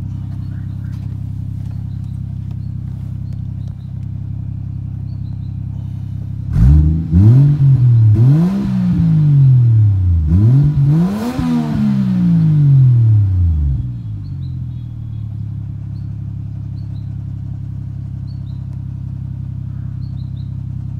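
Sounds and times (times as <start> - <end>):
car engine idling: 0.0 - 20.9
engine revving: 5.9 - 14.2.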